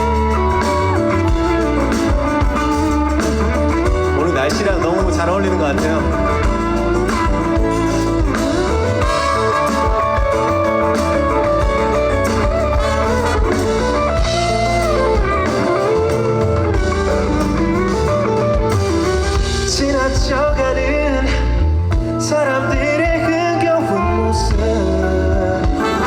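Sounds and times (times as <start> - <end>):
bass: 0.0 - 26.0
drums: 0.0 - 26.0
lead guitar with bending notes: 0.0 - 26.0.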